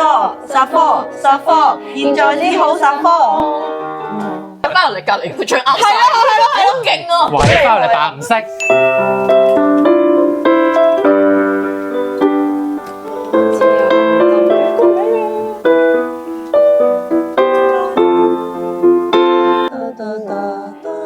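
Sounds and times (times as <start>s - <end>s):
piano playing pop melody: 0.0s - 5.1s, 8.3s - 21.0s.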